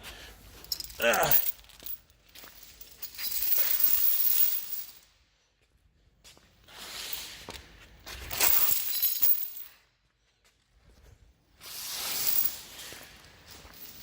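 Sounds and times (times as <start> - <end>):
metal chains rattling: 0.6 - 5.1, 8.2 - 9.8, 12.0 - 14.0.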